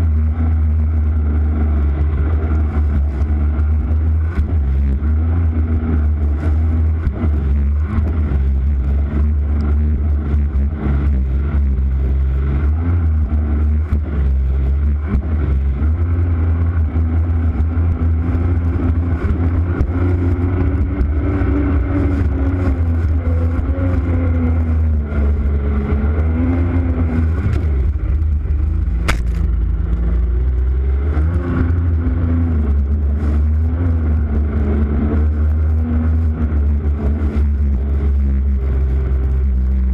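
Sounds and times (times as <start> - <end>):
vehicle engine running: 0.0 - 39.9
wind rumble on microphone: 0.0 - 39.9
sharp click: 29.0 - 29.5.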